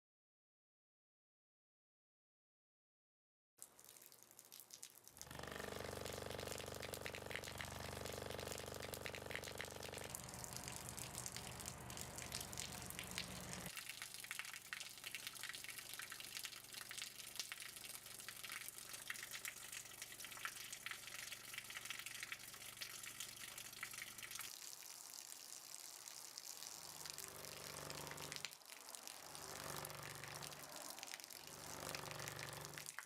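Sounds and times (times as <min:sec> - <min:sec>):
running water splashing: 0:03.6 - 0:33.0
low hum: 0:05.3 - 0:13.7.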